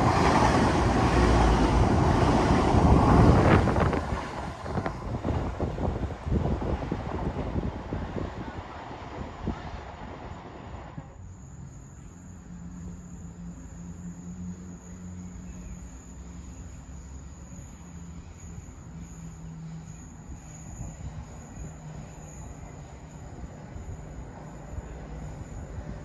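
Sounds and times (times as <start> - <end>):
wind rushing on microphone: 0.0 - 11.2
train running: 0.0 - 26.0.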